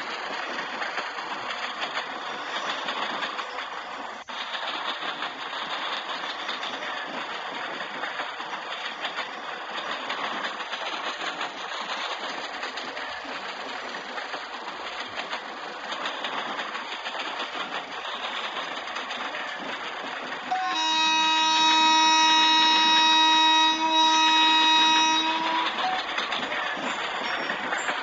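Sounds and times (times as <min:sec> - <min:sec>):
train running rattle: 0:00.0 - 0:28.0
locomotive horn blast: 0:20.5 - 0:26.7.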